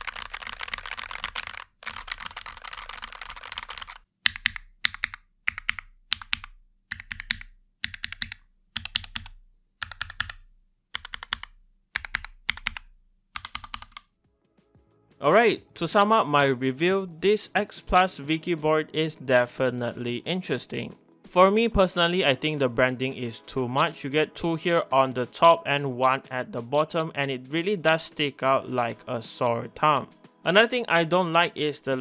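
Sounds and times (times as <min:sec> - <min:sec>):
mechanical keyboard typing: 0:00.0 - 0:10.4, 0:11.0 - 0:14.0.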